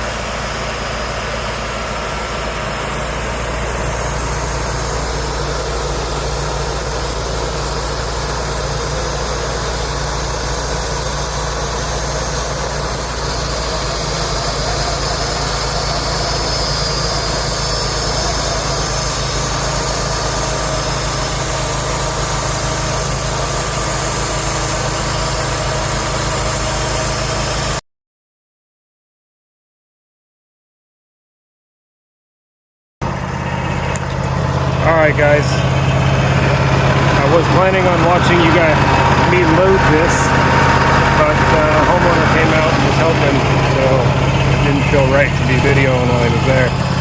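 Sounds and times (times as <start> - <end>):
high hiss: 0.0 - 26.4
sawmill engine running: 0.0 - 27.8, 33.0 - 47.0.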